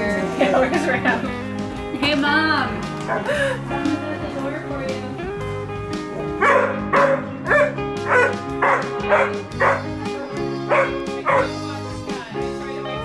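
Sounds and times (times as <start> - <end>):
background music with held tones: 0.0 - 13.0
dog barking: 3.1 - 3.3, 6.2 - 10.0, 10.7 - 11.6.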